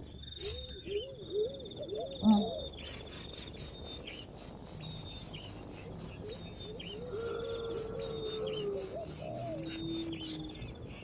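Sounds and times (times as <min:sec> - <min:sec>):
insect trill: 0:00.0 - 0:11.0
short low bird calls: 0:00.4 - 0:04.4.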